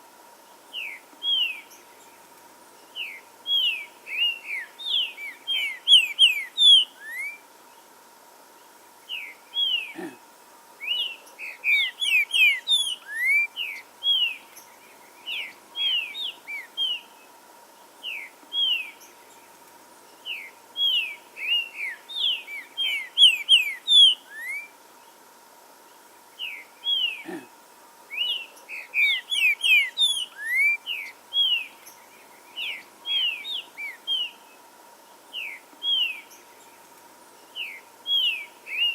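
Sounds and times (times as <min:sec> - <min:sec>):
faint steady hum: 0:00.0 - 0:38.9
bird singing whistled notes: 0:00.7 - 0:01.9, 0:02.9 - 0:07.4, 0:10.8 - 0:17.1, 0:18.0 - 0:19.4, 0:20.2 - 0:24.7, 0:28.1 - 0:34.5, 0:35.3 - 0:36.8, 0:37.4 - 0:38.9.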